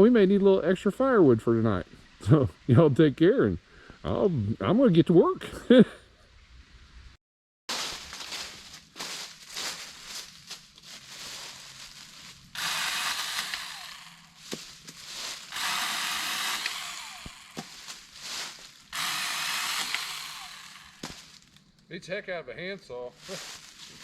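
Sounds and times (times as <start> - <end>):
rustling: 7.7 - 19.1, 23.2 - 24.0
power saw cutting wood: 12.5 - 21.4.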